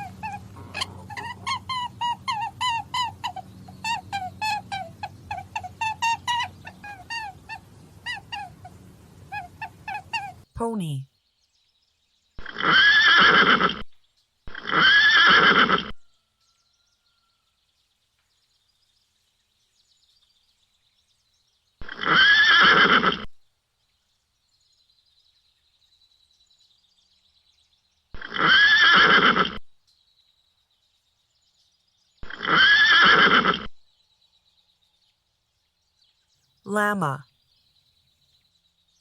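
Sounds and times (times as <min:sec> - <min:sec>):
pony whinnying: 0:00.0 - 0:08.6, 0:12.4 - 0:13.8, 0:14.5 - 0:16.0, 0:21.8 - 0:23.3, 0:28.2 - 0:29.6, 0:32.2 - 0:33.7.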